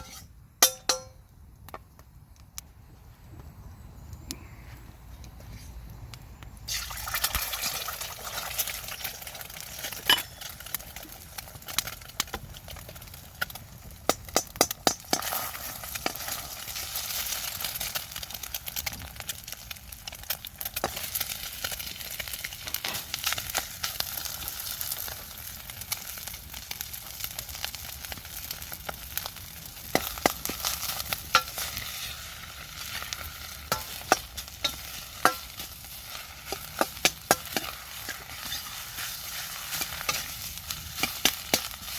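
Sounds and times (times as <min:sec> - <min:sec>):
utensil scraping a pan: 0:00.0 - 0:01.0, 0:31.3 - 0:41.9
food sizzling in a wok: 0:00.0 - 0:01.1, 0:06.7 - 0:41.9.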